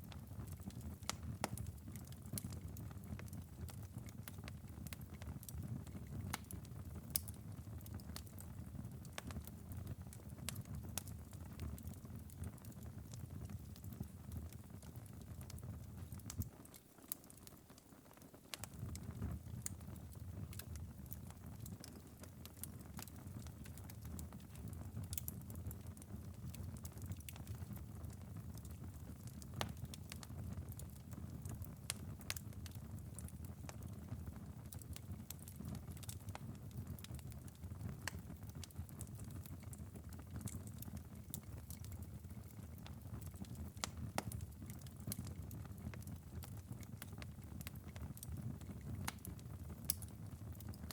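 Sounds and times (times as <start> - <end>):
fire crackling and popping: 0.0 - 50.9
low fire rumble: 18.6 - 50.9.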